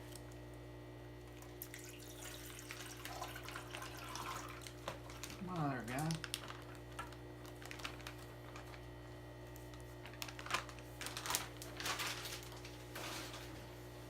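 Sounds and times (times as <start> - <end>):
low electrical hum: 0.0 - 14.0
plastic bag crinkling: 3.0 - 13.6.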